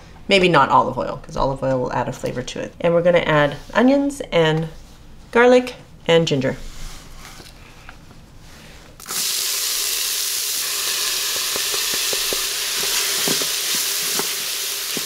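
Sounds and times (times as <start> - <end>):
vegetables sizzling in hot oil: 9.0 - 15.0
wooden spoon knocking on pot: 11.4 - 14.3.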